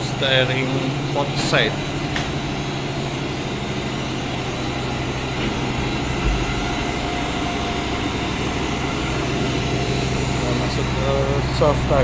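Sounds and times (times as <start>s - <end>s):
ship machinery humming: 0.0s - 12.0s
dull low thump: 5.4s - 7.1s.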